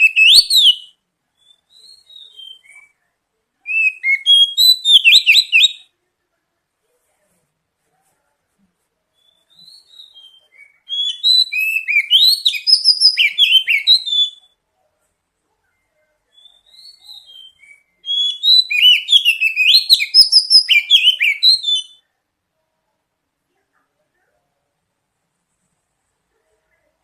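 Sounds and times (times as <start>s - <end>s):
songbird singing high whistles: 0.0s - 2.8s, 3.7s - 5.9s, 9.2s - 14.6s, 16.3s - 22.0s.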